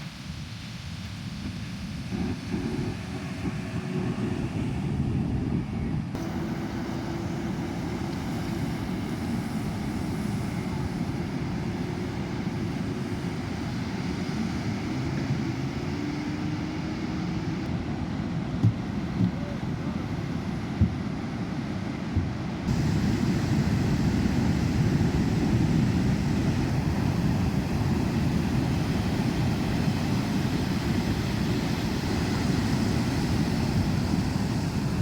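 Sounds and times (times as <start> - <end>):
wind: 0.0 - 35.0
boat engine running: 2.1 - 21.0
surf rushing: 6.1 - 20.8, 22.5 - 35.0.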